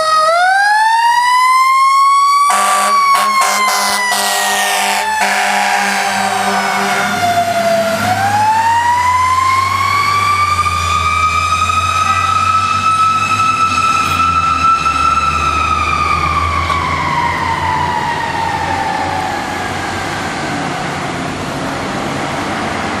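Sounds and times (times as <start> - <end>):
fire engine siren wailing: 0.0 - 23.0
air horn: 2.5 - 7.6
truck engine rumble: 2.5 - 23.0.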